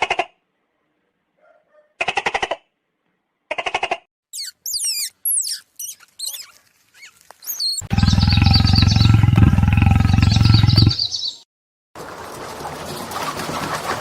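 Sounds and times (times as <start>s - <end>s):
high-pitched animal squeaks: 4.3s - 8.2s
low pulsing animal growl: 7.8s - 11.0s.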